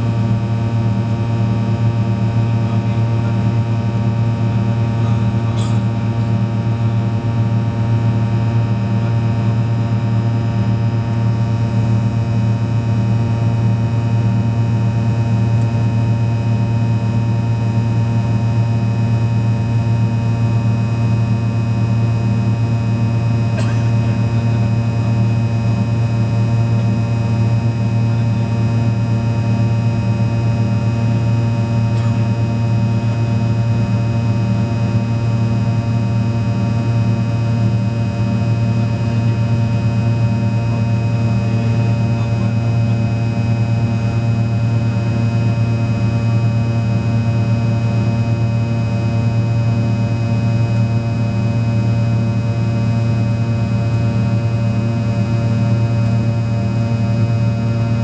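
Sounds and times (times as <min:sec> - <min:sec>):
jet engines droning: 0:12.6 - 0:58.0.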